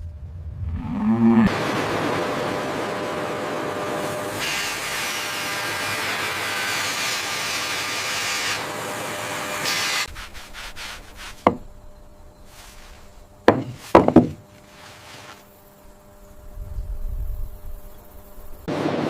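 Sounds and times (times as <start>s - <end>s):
sharp knocks: 13.5s - 14.4s.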